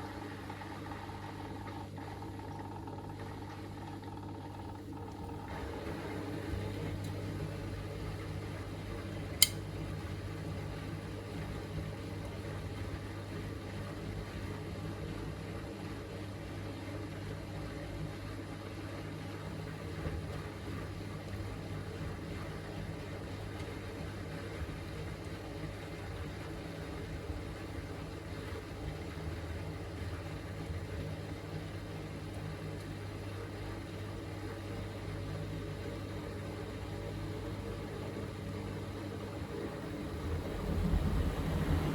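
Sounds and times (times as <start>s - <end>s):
washing machine draining hum: 0.0s - 41.9s
sharp click: 9.4s - 9.6s.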